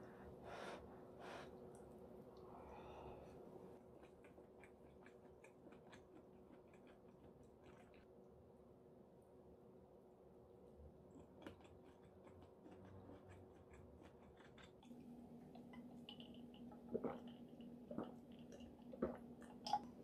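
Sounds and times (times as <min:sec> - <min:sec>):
faint chewing: 0:03.7 - 0:08.2, 0:11.0 - 0:20.0.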